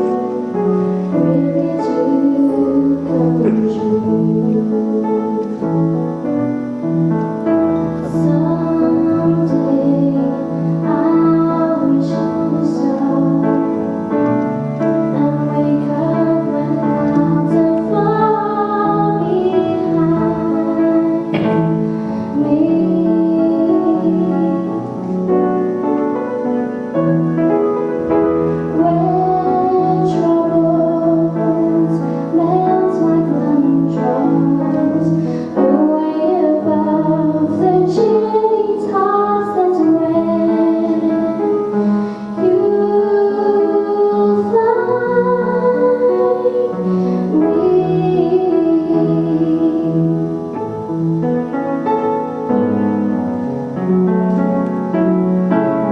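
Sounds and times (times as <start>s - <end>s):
woman singing with vibrato: 0.0s - 6.1s, 8.0s - 14.0s, 14.9s - 25.0s, 28.5s - 50.6s
keyboard accompaniment: 0.0s - 55.9s.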